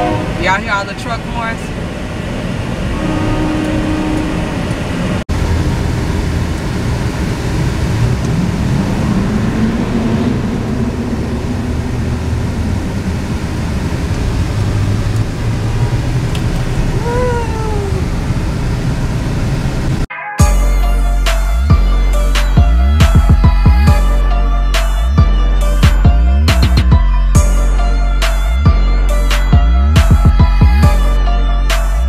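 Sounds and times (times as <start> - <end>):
truck horns: 0.0 - 1.7, 2.8 - 5.0
truck engines and road noise: 0.0 - 32.0.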